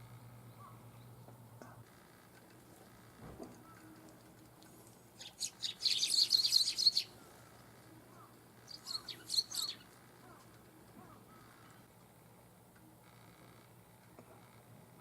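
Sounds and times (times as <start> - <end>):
sparrows chirping: 0.1 - 1.8, 4.8 - 11.9.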